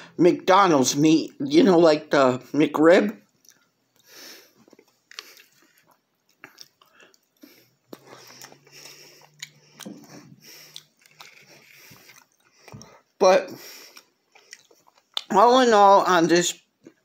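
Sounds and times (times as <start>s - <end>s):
person chewing food: 3.2s - 15.3s, 16.6s - 17.0s.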